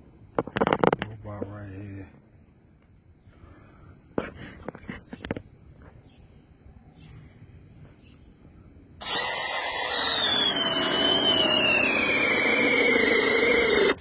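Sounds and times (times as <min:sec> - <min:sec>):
electric drill whining: 0:09.0 - 0:14.0.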